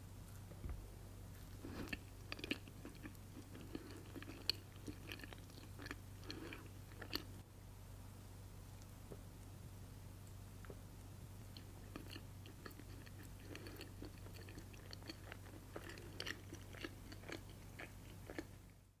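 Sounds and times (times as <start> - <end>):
low steady hum: 0.0 - 19.0
close chewing: 1.4 - 7.4, 11.5 - 18.8.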